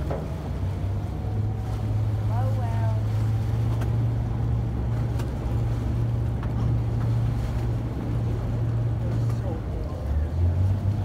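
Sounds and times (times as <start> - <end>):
boat engine humming: 0.0 - 11.0
sea rushing: 0.0 - 11.0
wind: 0.0 - 11.0.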